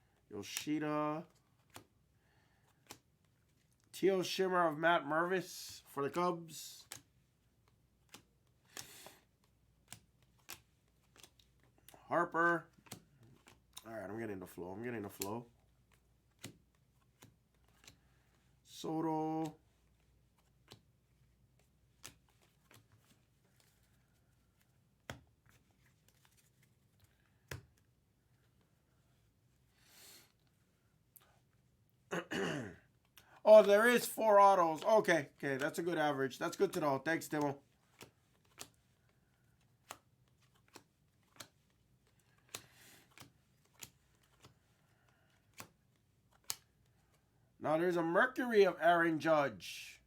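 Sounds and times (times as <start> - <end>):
cards clicking and tapping: 1.3 - 1.9, 2.6 - 3.9, 6.8 - 12.0, 12.6 - 13.9, 14.5 - 18.6, 19.2 - 28.8, 33.0 - 47.2.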